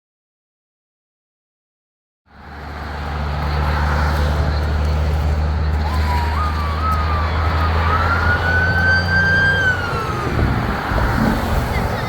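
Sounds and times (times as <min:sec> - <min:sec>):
truck engines idling: 0:02.3 - 0:12.0
emergency siren wailing: 0:03.6 - 0:12.0.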